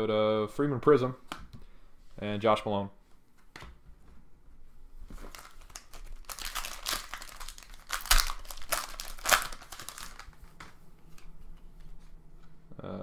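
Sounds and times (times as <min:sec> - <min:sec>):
plastic wrapper crinkling: 0:05.1 - 0:11.4
sharp plastic rips: 0:05.2 - 0:10.4.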